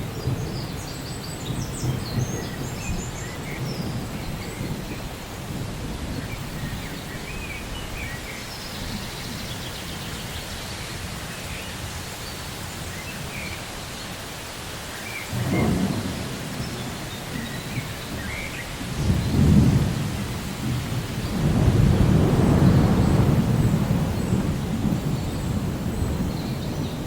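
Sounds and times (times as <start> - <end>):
steady rain: 0.0 - 27.0
rolls of thunder: 15.3 - 27.0.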